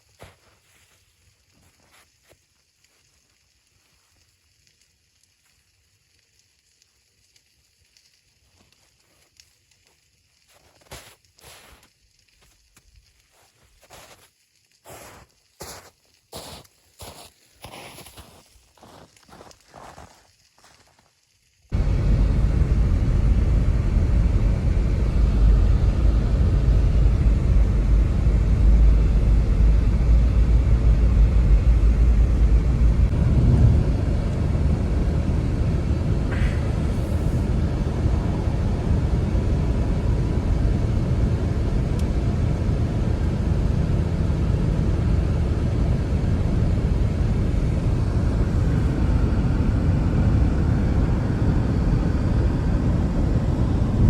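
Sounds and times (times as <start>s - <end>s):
blizzard wind rumbling: 14.9s - 20.9s, 21.7s - 54.0s.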